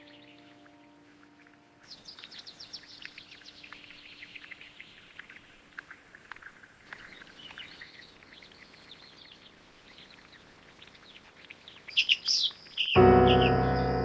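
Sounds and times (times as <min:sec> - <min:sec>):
music with keyboard chords: 0:13.0 - 0:14.0.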